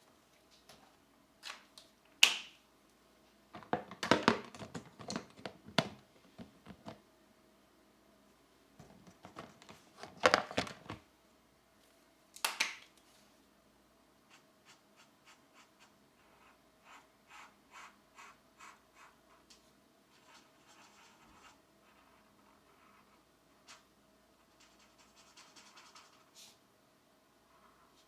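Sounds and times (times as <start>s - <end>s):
pencil scratching on paper: 14.3s - 19.4s, 20.1s - 23.8s, 24.4s - 26.6s.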